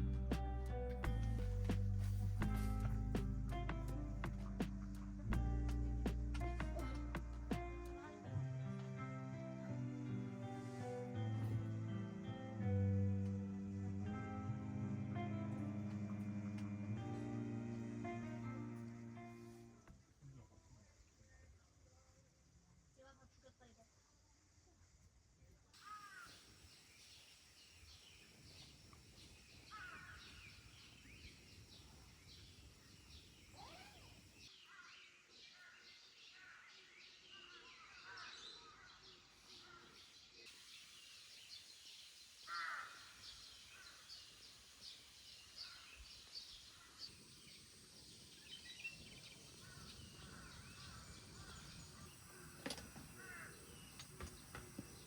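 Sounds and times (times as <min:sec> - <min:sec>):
low background rumble: 0:00.0 - 0:08.8
birds chirping: 0:25.8 - 0:55.0
swooping bird calls: 0:25.8 - 0:55.0.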